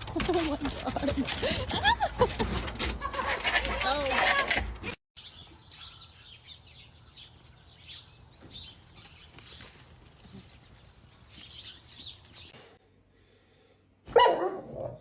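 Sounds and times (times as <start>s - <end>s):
small birds chirping: 5.2s - 12.8s.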